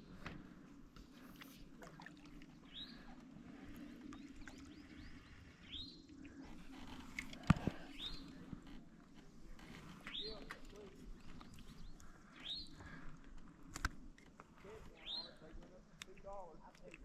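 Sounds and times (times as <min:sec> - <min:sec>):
songbird chirping: 0:02.6 - 0:13.5, 0:14.6 - 0:17.0.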